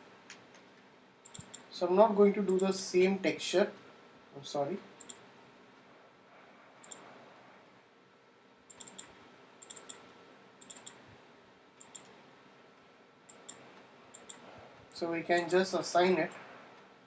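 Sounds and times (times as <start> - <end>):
low steady hiss: 0.0 - 17.0
computer mouse clicks: 0.3 - 1.7, 5.0 - 5.2, 6.8 - 7.1, 8.7 - 10.0, 10.6 - 11.0, 11.8 - 12.2, 13.3 - 14.5.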